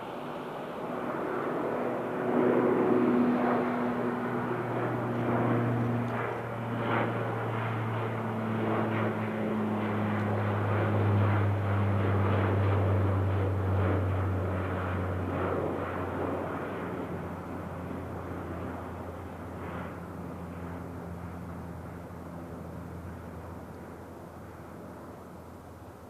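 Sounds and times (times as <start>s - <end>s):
turboprop propeller drone: 0.0s - 26.0s.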